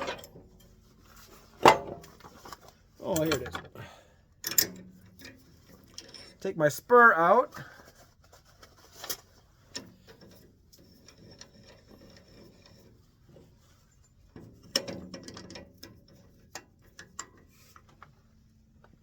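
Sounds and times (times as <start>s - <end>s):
metal clicks and knocks: 1.6s - 3.8s.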